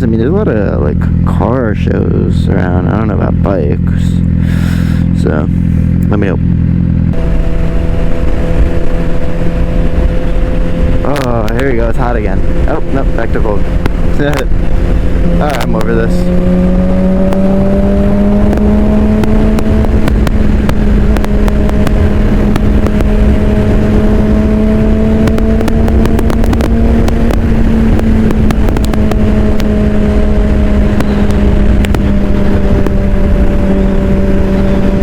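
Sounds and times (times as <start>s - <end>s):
motorcycle engine cruising: 0.0s - 35.0s
wind rumble on microphone: 0.0s - 35.0s
crackling clicks: 18.4s - 23.4s, 25.2s - 29.8s, 30.7s - 33.0s.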